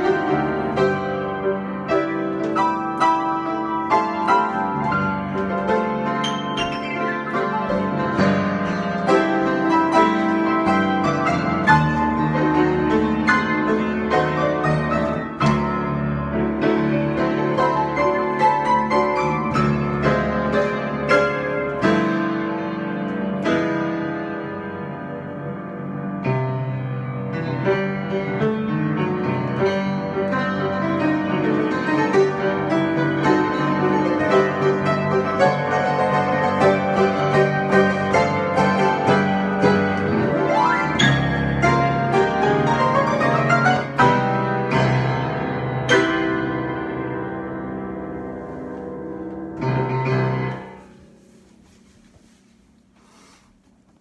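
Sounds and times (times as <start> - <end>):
solo piano playing: 0.0 - 51.4.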